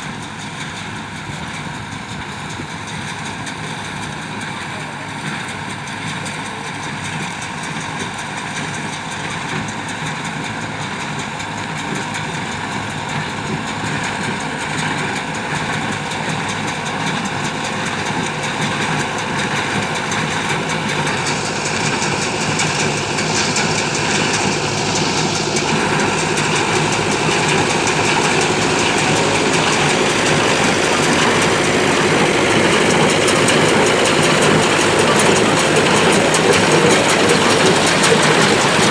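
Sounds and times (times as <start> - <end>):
tractor running: 0.0 - 38.9
baler mechanical clatter: 12.0 - 38.9.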